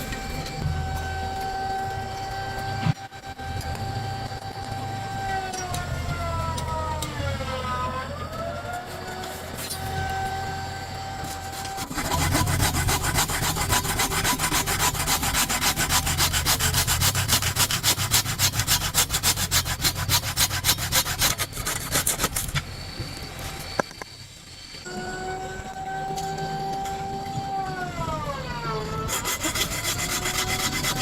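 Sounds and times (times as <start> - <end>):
hand saw cutting wood: 11.2 - 22.5, 29.1 - 31.0
steady high tone: 24.8 - 27.2.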